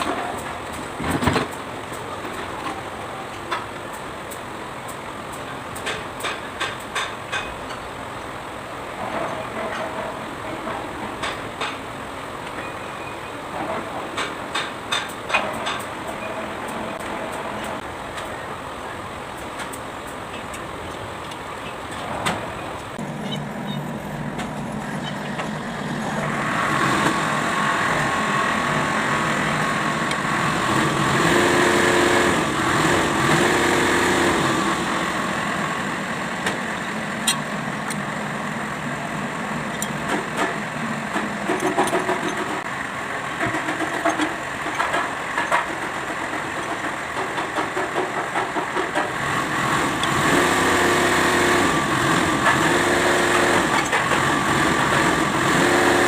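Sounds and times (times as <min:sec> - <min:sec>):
diesel engine running: 0:19.9 - 0:56.0.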